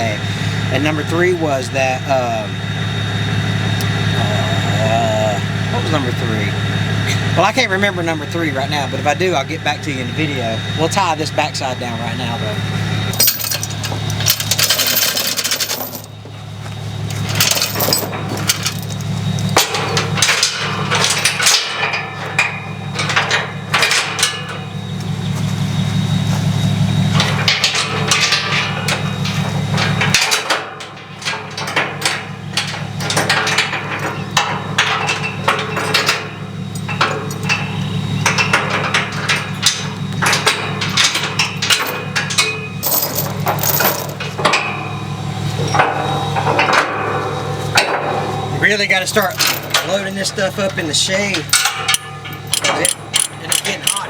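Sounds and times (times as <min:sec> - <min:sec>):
engine hum: 0:00.0 - 0:54.0
chains clanking against metal: 0:13.1 - 0:16.2, 0:17.1 - 0:24.7, 0:27.1 - 0:45.0, 0:48.5 - 0:54.0.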